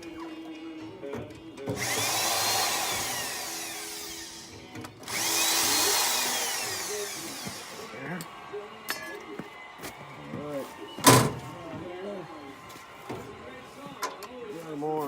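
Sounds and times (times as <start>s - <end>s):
power drill driving screws: 1.7s - 8.3s.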